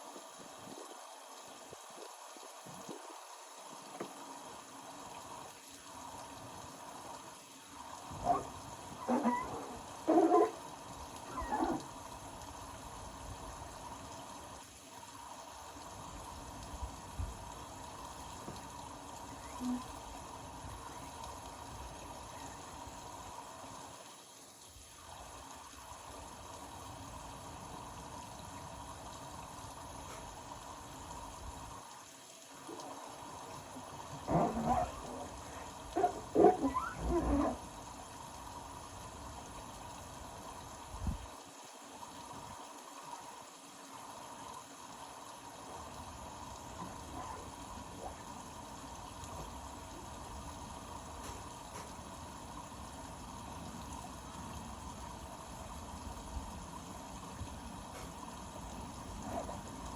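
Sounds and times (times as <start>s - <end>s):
water moving in washing machine drum: 8.0s - 12.2s, 19.3s - 20.0s, 32.7s - 38.2s, 46.7s - 48.4s, 59.1s - 59.9s.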